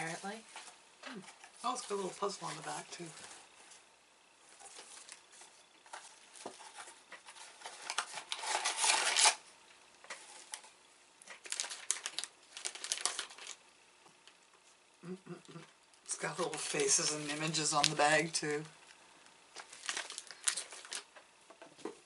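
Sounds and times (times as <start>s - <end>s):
plastic snack bag crinkling: 4.6s - 9.4s, 10.1s - 13.6s, 16.1s - 21.2s.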